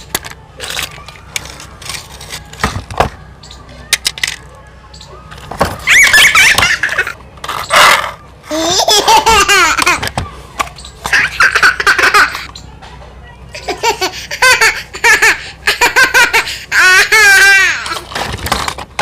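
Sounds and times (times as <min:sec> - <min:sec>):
young child laughing and squealing: 0:05.8 - 0:07.2.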